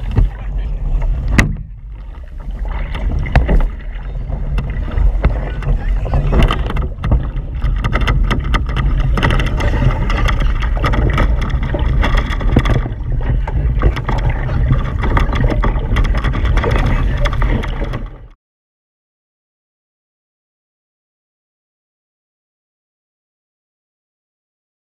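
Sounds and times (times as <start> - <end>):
wind buffeting microphone: 0.0 - 18.2
water splashing along hulls: 0.0 - 18.4.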